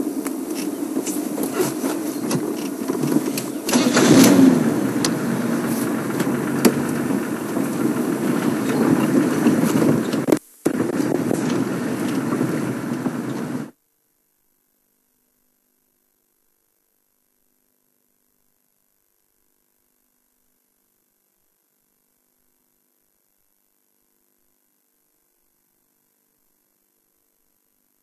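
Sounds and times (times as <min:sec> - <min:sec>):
vehicle engine rumbling: 0:00.0 - 0:13.7.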